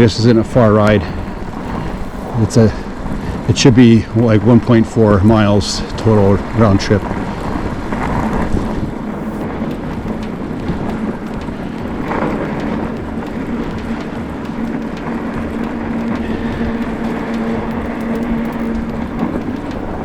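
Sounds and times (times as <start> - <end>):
wind rumble on microphone: 0.0 - 20.0
electric motor hum: 7.1 - 20.0.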